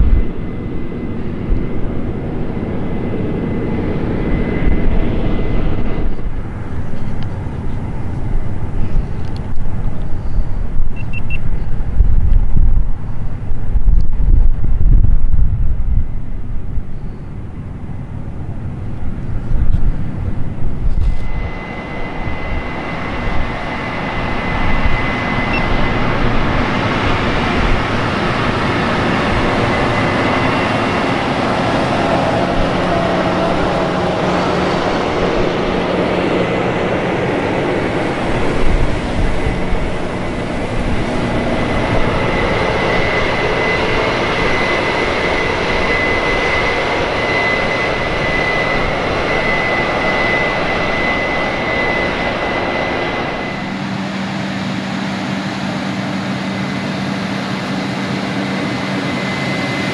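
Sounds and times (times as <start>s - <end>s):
high-pitched whine: 0.0s - 59.9s
harvest machinery running: 25.2s - 47.2s.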